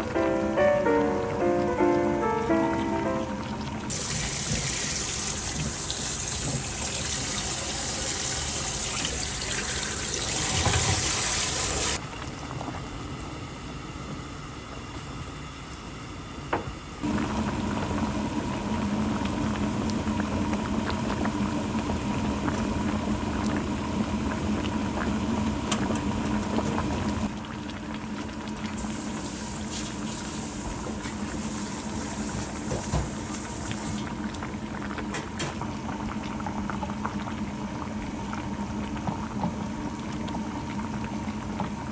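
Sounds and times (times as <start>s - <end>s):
water running: 0.0s - 12.5s.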